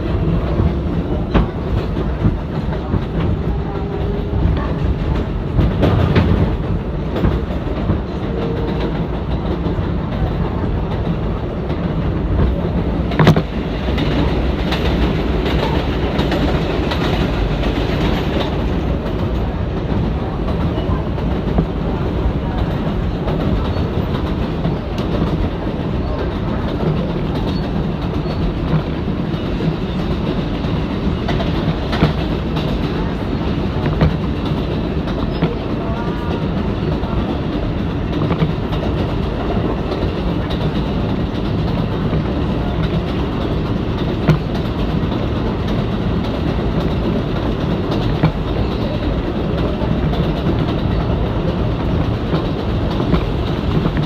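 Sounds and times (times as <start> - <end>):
rail joint clacks: 0.0 - 54.0
subway car rumbling: 0.0 - 54.0.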